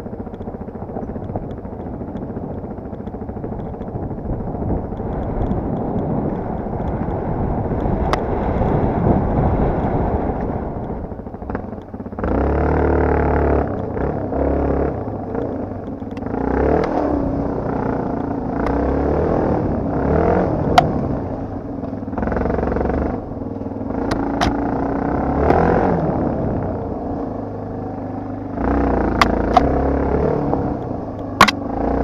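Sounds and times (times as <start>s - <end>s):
motorcycle engine revving: 0.0s - 32.0s
sharp clicks: 0.2s - 4.0s, 4.8s - 8.8s, 29.1s - 29.8s, 30.8s - 31.6s.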